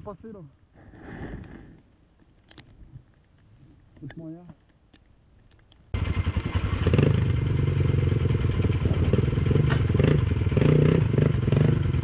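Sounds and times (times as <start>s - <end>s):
quad engine revving: 6.0s - 12.0s.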